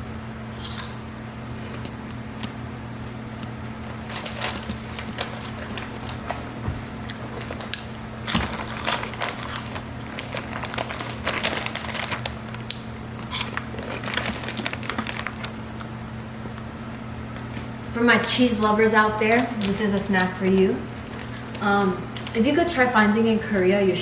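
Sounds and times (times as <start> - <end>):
steady low hum: 0.0 - 24.0
crunching and chewing puffs: 0.6 - 16.7, 19.4 - 22.4.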